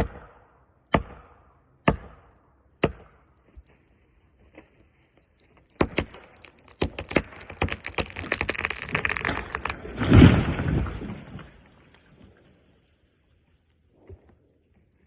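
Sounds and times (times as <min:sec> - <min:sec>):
branches snapping: 0:05.4 - 0:12.2
wood cracking: 0:05.4 - 0:12.5
tree crashing to the ground: 0:06.0 - 0:12.3.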